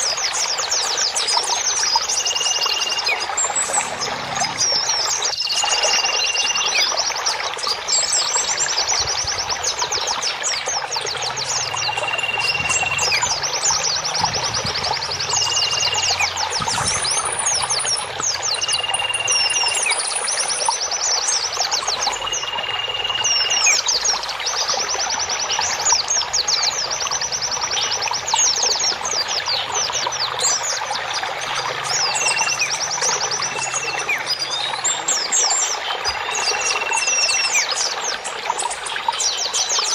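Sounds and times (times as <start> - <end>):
flowing water: 0.0 - 39.9
songbirds chirping and trilling: 0.0 - 39.9
high level bird whistle: 1.3 - 6.9, 11.5 - 20.9, 22.0 - 24.0, 32.0 - 37.7.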